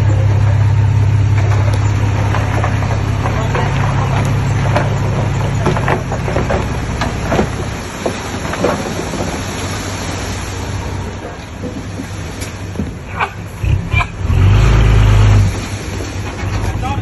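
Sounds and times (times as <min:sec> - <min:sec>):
diesel engine hum: 0:00.0 - 0:17.0
rough rumble: 0:00.0 - 0:17.0
rock and debris clattering: 0:01.2 - 0:10.3, 0:15.5 - 0:17.0.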